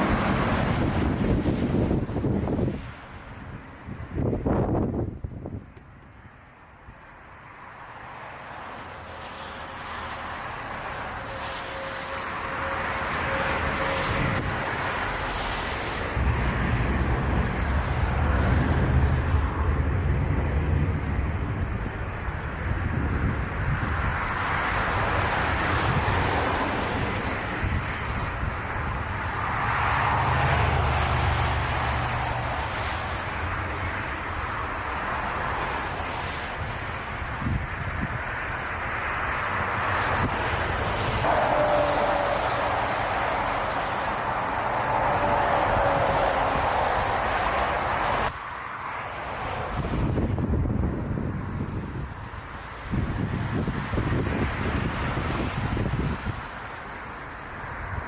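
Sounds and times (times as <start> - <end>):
aircraft engine on approach: 7.8 - 51.0.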